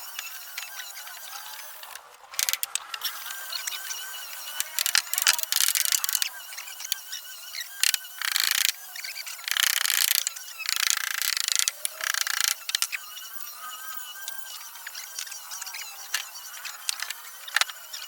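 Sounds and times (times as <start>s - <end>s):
hand tool rasping on wood: 2.4s - 13.0s.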